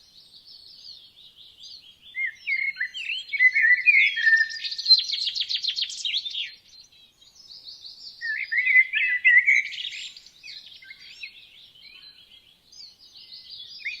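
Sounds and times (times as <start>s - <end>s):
songbirds singing and chirping: 0.0s - 14.0s.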